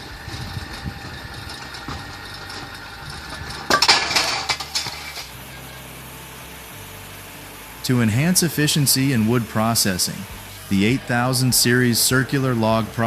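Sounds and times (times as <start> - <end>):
clattering and clinking: 0.0 - 5.4
wood-splitting machine humming: 0.0 - 13.0.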